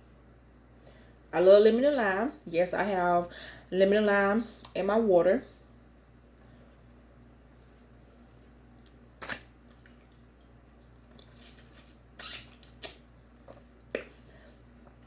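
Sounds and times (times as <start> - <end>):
faint low hum: 0.0 - 15.0
eating noises: 6.0 - 15.0.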